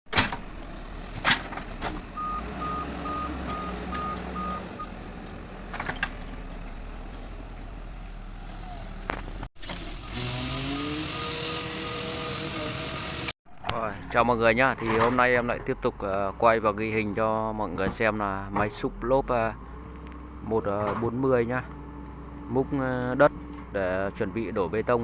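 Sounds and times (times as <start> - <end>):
excavator diesel engine running: 0.4 - 11.2
reversing alarm beeping: 2.2 - 4.9.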